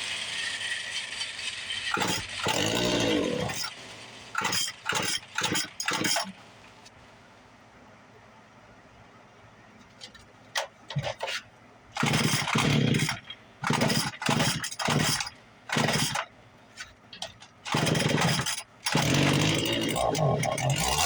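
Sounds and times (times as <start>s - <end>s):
two-stroke engine sputtering: 12.0s - 16.3s, 17.6s - 21.0s.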